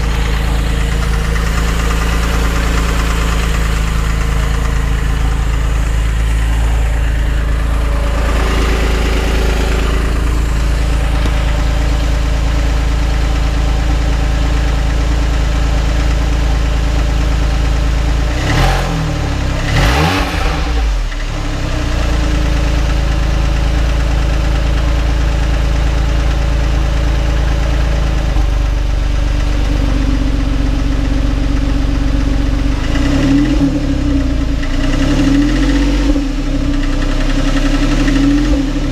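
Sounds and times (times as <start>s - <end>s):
car engine revving: 0.0s - 23.2s, 28.3s - 38.9s
car engine idling with knocking: 0.0s - 38.9s.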